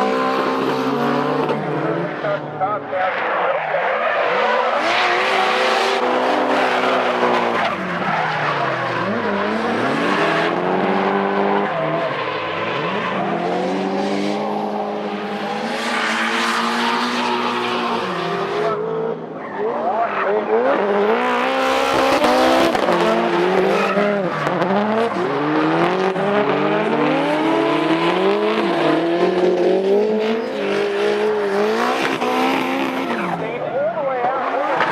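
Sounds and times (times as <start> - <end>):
car engines revving high: 0.0 - 34.9.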